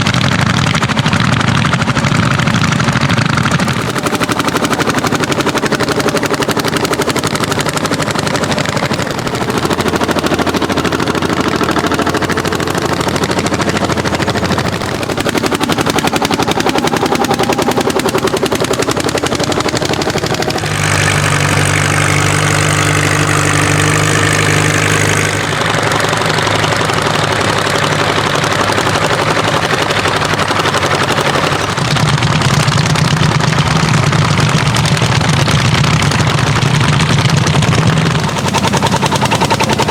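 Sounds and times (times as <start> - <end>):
old tractor engines running hard: 0.0 - 39.9.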